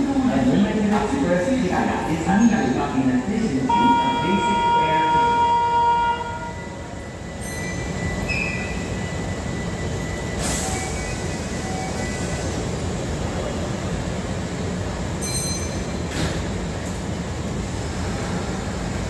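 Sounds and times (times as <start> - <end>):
high brake squeals: 3.7 - 12.6.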